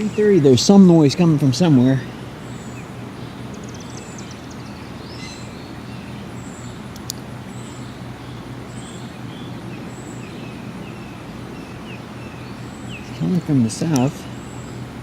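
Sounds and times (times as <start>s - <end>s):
birds chirping: 0.0s - 15.0s
distant aircraft rumble: 0.0s - 15.0s
sharp click: 6.9s - 7.2s.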